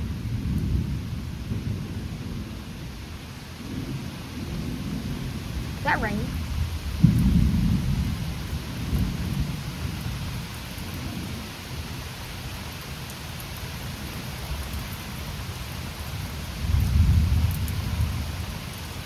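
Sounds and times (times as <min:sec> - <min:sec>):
low thunder rumble: 0:00.0 - 0:12.0, 0:13.8 - 0:19.0
heavy rain falling: 0:00.0 - 0:19.0.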